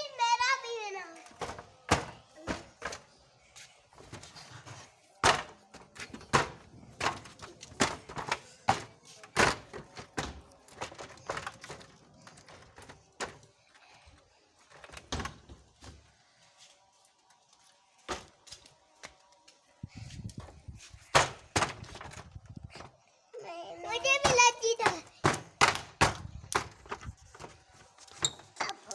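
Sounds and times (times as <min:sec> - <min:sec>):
sharp knocks and thuds: 0:01.4 - 0:03.0, 0:04.0 - 0:13.4, 0:20.3 - 0:22.9, 0:24.0 - 0:27.7.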